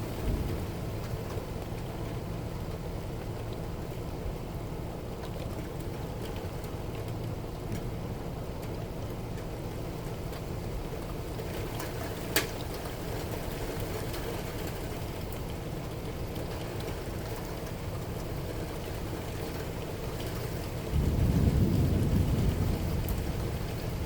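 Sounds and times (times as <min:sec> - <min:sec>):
low thunder rumble: 0:00.0 - 0:01.4, 0:20.8 - 0:24.0
steady rain falling: 0:00.0 - 0:24.0.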